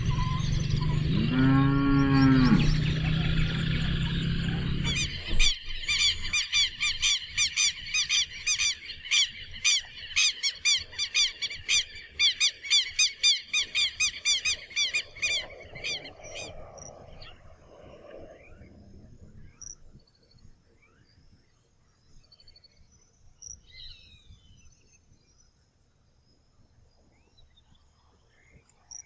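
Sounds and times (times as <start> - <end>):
cow mooing: 0.0 - 5.3
bird chirping: 0.0 - 17.4.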